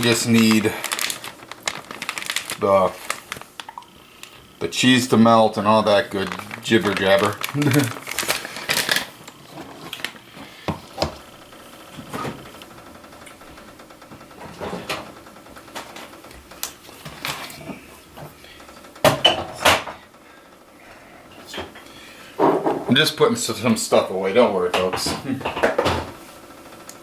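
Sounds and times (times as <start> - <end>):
kitchen things knocking: 24.7 - 26.2.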